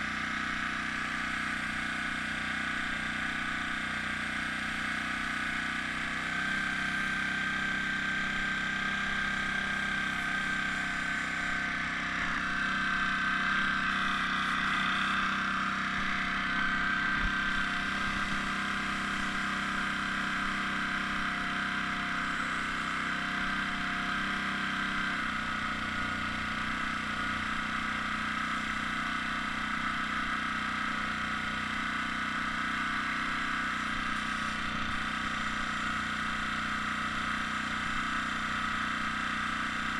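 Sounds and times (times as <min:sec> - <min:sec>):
air compressor humming: 0:00.0 - 0:39.9.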